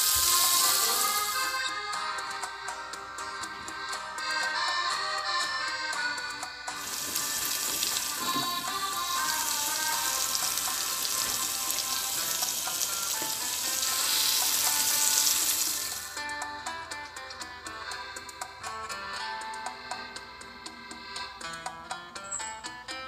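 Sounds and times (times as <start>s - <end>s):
meat sizzling in oil: 0.0s - 1.5s, 6.8s - 16.2s
background music: 0.0s - 23.0s.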